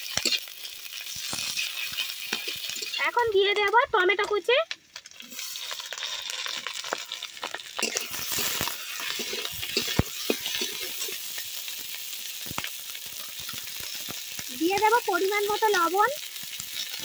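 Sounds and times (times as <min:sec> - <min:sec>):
spatula scraping pan: 0:00.0 - 0:03.1, 0:07.5 - 0:11.3
food sizzling in oil: 0:00.0 - 0:17.0.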